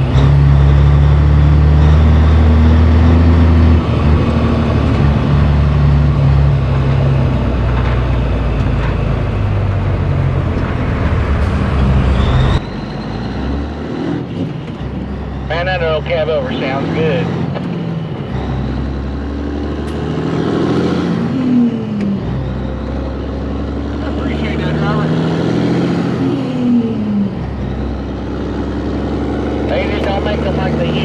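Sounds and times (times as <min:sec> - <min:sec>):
truck diesel engine droning: 0:00.0 - 0:31.0.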